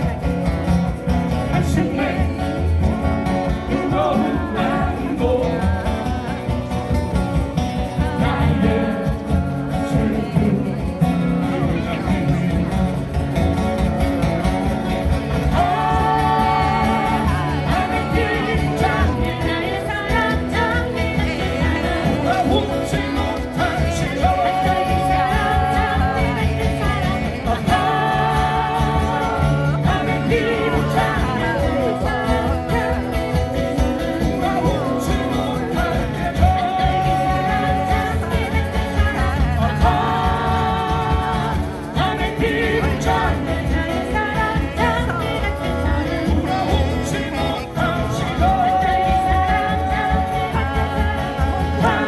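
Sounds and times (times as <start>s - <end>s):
guitar ensemble: 0.0s - 52.0s
person singing live: 0.0s - 52.0s.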